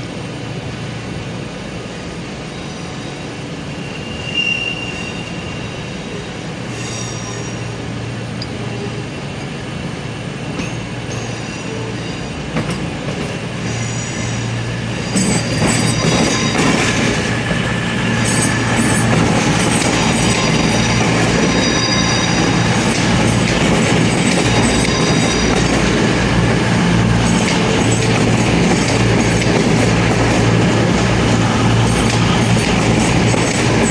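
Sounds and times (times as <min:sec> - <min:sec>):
diesel train engine drone: 0:00.0 - 0:33.9
train wheels squealing: 0:02.4 - 0:07.9, 0:10.6 - 0:12.5, 0:13.5 - 0:23.4, 0:24.0 - 0:26.0.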